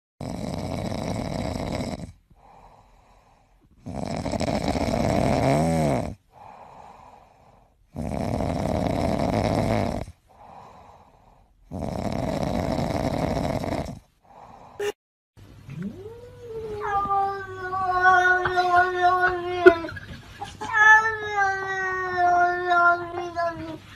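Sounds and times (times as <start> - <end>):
cat snoring: 0.2 - 14.5
cat breathing faintly: 2.3 - 3.9, 6.3 - 7.9, 10.3 - 11.7.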